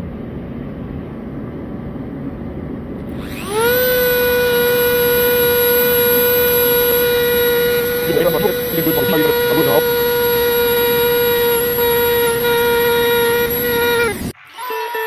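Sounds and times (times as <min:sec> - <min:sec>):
rotary tool whining: 0:03.0 - 0:15.0.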